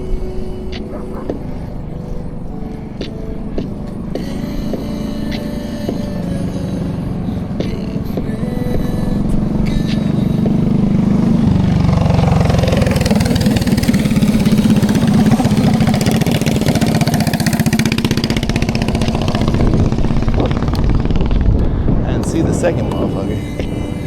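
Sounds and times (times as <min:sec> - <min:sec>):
mini-motorcycle engines revving: 0:10.0 - 0:21.6.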